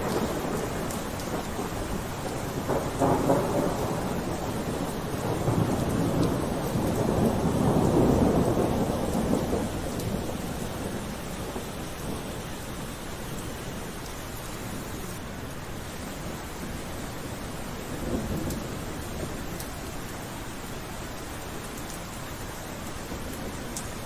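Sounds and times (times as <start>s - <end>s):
thunder crack: 0.0s - 12.1s
rolling thunder rumble: 0.0s - 13.7s, 17.8s - 19.7s
steady rain: 0.0s - 24.0s.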